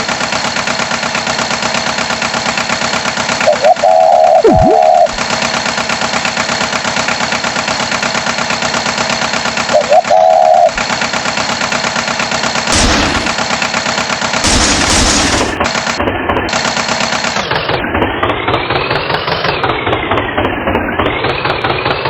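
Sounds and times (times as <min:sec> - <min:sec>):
cartoon tractor engine chugging: 0:00.0 - 0:22.0
swooping sound effect: 0:03.5 - 0:05.2.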